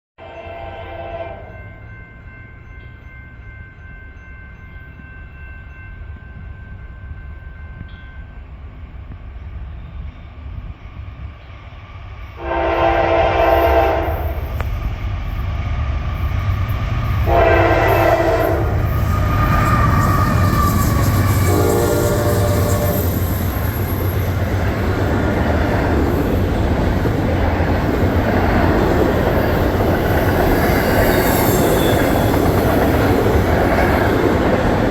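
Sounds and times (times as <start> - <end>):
train horn blasts: 0.2 - 1.7, 12.4 - 14.6, 17.2 - 23.2
locomotive engines and wheels rumbling: 0.2 - 34.9
high faint squeal: 18.8 - 24.4.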